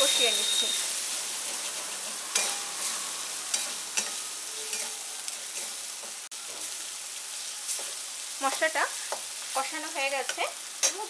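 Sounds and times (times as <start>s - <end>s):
masala sizzling in oil: 0.0s - 11.0s
spatula scraping a pan: 0.3s - 6.8s.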